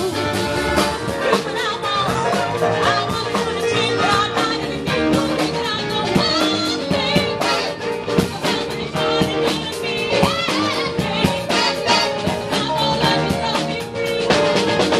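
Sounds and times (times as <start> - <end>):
drums keeping steady beat: 0.0 - 14.9
live rock band playing: 0.0 - 14.9
wavering lead guitar line: 0.0 - 14.9.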